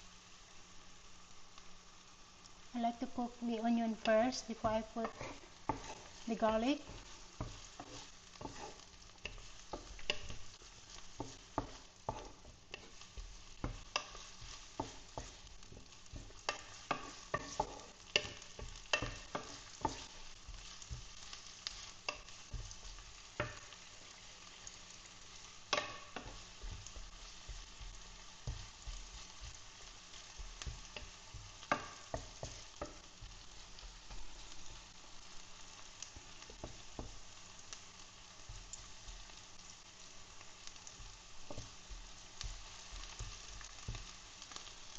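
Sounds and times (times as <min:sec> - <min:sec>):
onion sizzling in oil: 0:00.0 - 0:44.9
utensil scraping a pan: 0:05.0 - 0:21.0.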